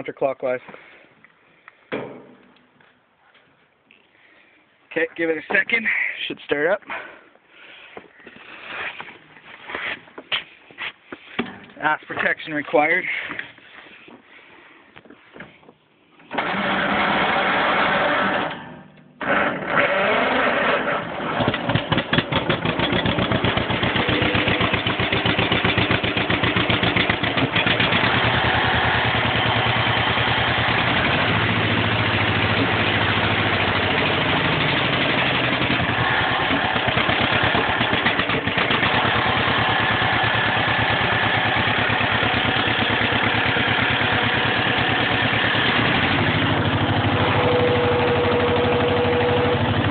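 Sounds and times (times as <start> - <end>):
engine cranking and starting: 16.2 - 49.9
engine running with even popping: 16.3 - 49.9.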